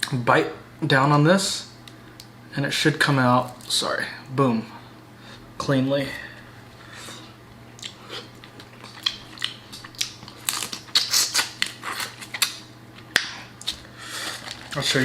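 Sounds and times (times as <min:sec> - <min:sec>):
wet chewing clicks: 0:07.8 - 0:12.6.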